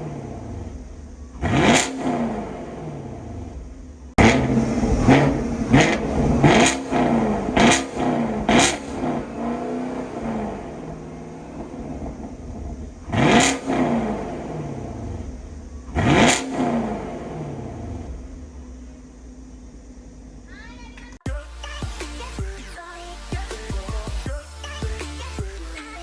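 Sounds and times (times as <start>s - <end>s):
car engine revving: 0.0s - 20.5s
car engine idling: 0.0s - 26.0s.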